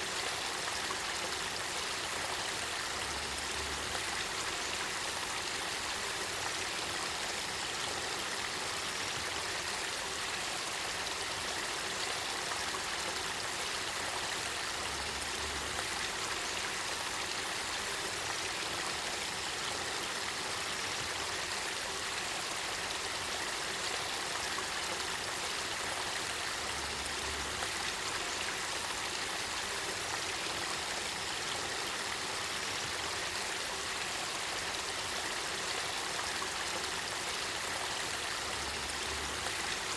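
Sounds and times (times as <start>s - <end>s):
river water rushing and trickling: 0.0s - 39.9s.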